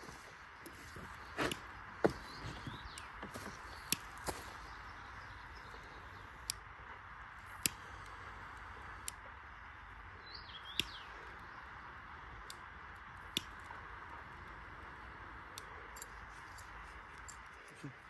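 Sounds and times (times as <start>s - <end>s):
steady outdoor hiss: 0.0s - 18.0s
bird chirp: 0.1s - 6.6s, 9.7s - 12.0s.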